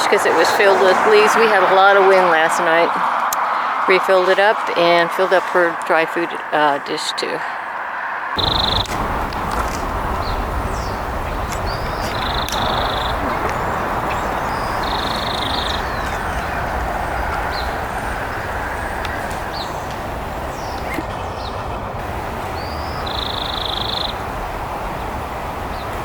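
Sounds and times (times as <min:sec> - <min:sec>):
birds chirping: 0:00.0 - 0:26.0
steady rushing background: 0:07.7 - 0:26.0
harsh buzzy bird call: 0:10.0 - 0:26.0.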